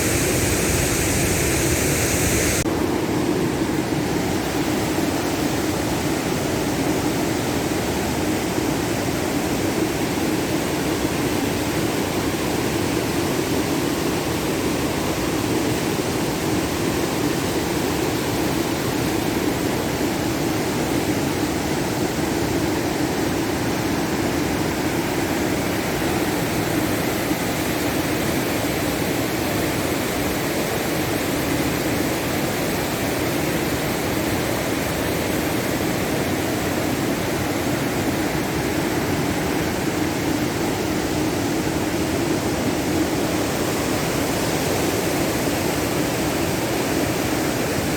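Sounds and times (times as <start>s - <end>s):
steady rushing noise: 0.0s - 2.7s.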